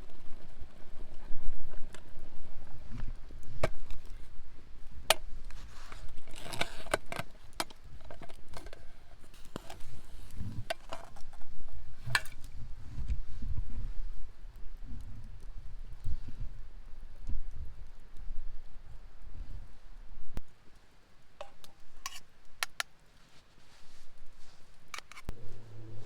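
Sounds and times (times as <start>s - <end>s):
low rumble: 25.3s - 26.0s.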